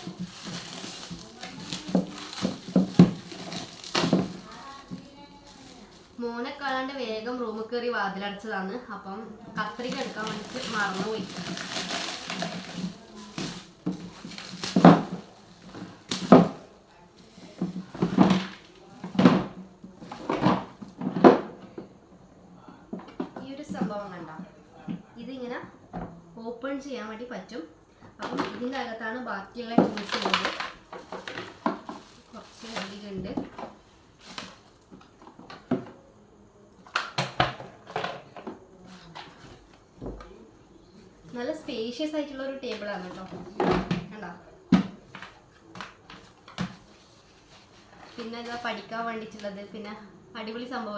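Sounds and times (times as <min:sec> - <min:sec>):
cardboard packaging tearing: 0:00.0 - 0:06.2, 0:09.6 - 0:16.6, 0:29.9 - 0:33.0.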